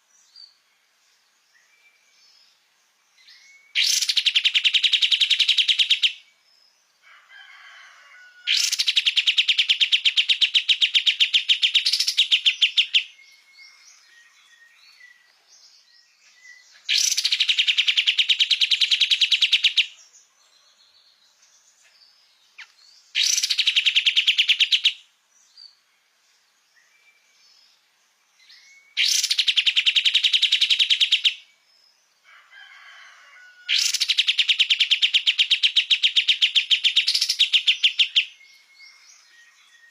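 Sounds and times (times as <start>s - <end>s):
bird singing rapid trills: 1.6s - 6.4s, 8.6s - 20.0s, 22.4s - 25.9s, 26.8s - 31.9s, 33.8s - 39.9s.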